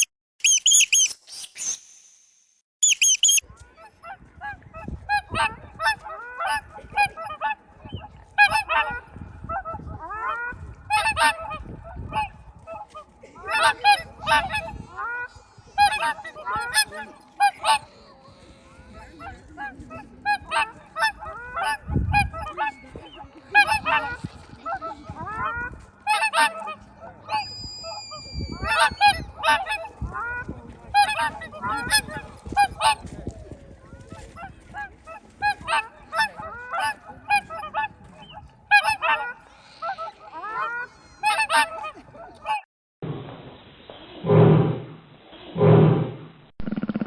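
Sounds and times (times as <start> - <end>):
high squeaking call: 0.0 - 1.9, 2.8 - 3.4, 27.2 - 29.6
geese honking: 5.1 - 33.1, 35.1 - 42.6.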